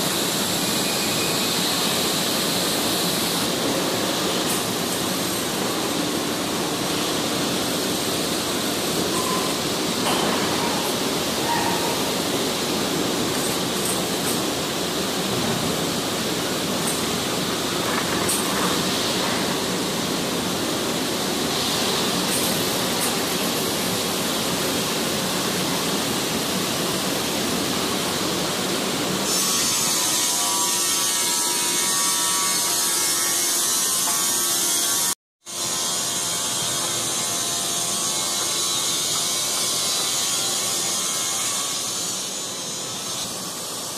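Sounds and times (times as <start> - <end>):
factory machinery running: 0.0 - 33.1.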